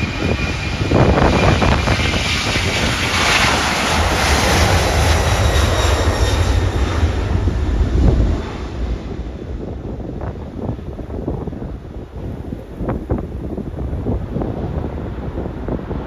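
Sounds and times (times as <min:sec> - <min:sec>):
jet engines roaring: 0:00.0 - 0:16.0
wind buffeting microphone: 0:00.0 - 0:16.0.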